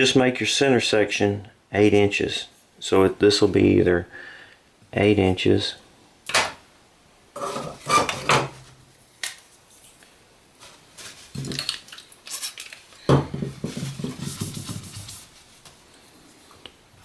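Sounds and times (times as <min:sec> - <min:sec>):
clattering on workbench: 0:07.4 - 0:08.7, 0:13.1 - 0:14.7.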